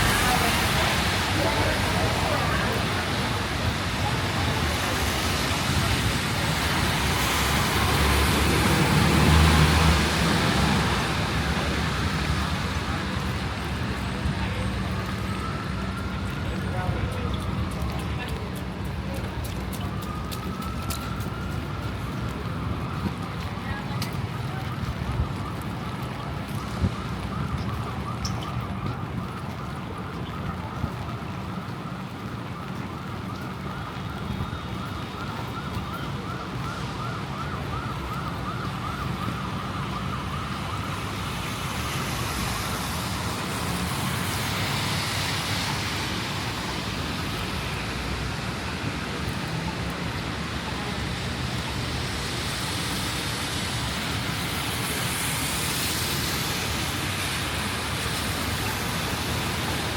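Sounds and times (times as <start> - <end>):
rain hissing: 0.0 - 15.3
city traffic: 0.0 - 59.9
wet tyres on street: 0.0 - 59.9.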